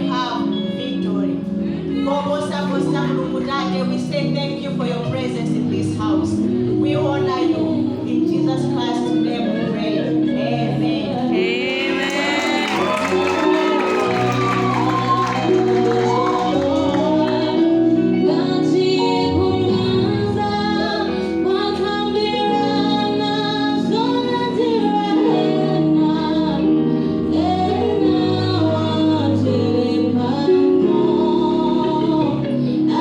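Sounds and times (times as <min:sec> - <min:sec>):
woman singing gospel song: 0:00.0 - 0:33.0
instrumental backing: 0:11.1 - 0:33.0.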